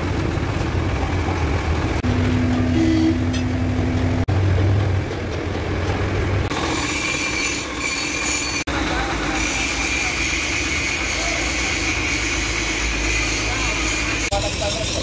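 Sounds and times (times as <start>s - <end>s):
diesel truck engine rumbling: 0.0s - 6.8s
high-pitched squeal: 6.5s - 8.7s.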